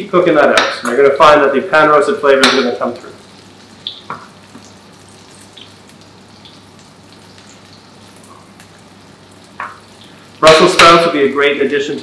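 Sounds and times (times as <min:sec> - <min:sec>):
food sizzling in butter: 0:00.5 - 0:12.0
fat popping and crackling: 0:02.4 - 0:08.8, 0:09.4 - 0:11.0.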